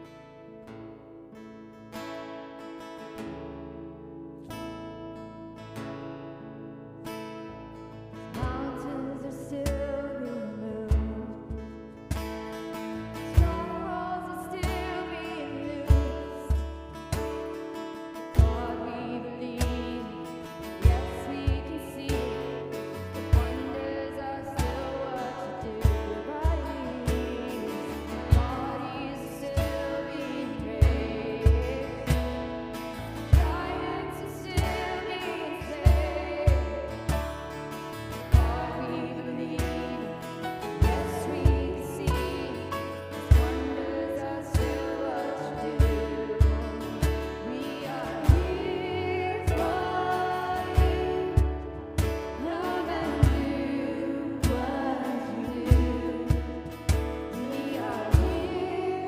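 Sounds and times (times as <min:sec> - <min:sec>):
person singing: 0:08.3 - 0:11.7, 0:12.8 - 0:17.4, 0:18.2 - 0:59.0
worship band playing: 0:19.7 - 0:59.0.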